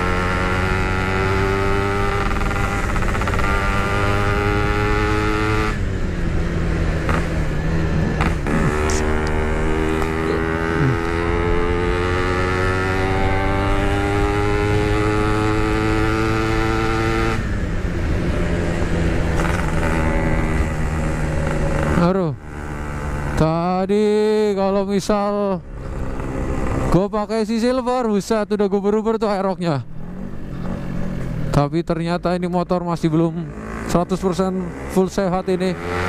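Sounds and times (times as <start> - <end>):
two-stroke motorcycle engine: 0.0 - 24.6.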